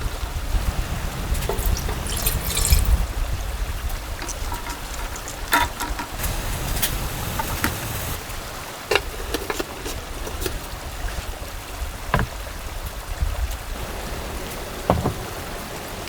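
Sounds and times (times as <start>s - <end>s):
mountain stream rushing: 0.0s - 16.0s
light knocks and clicks: 12.2s - 12.4s.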